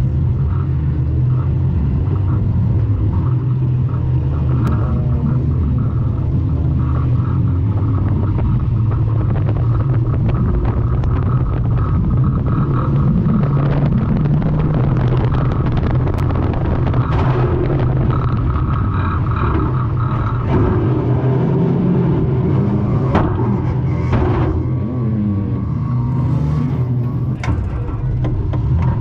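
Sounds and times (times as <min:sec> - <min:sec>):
car engine running hard: 0:00.0 - 0:29.0
bodywork rattles and knocks: 0:00.7 - 0:21.0.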